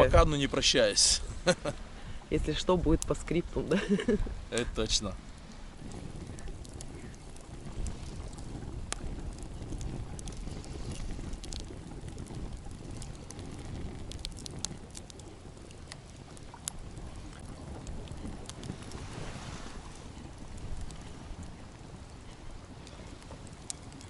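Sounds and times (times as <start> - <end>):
wind buffeting microphone: 0.0 - 24.0
faint clicks: 5.4 - 19.0, 22.0 - 24.0.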